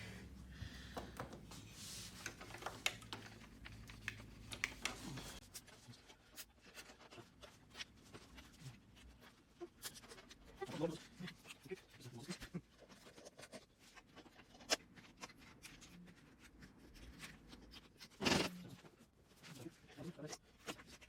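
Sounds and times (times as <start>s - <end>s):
light clicks and taps: 0.8s - 5.4s.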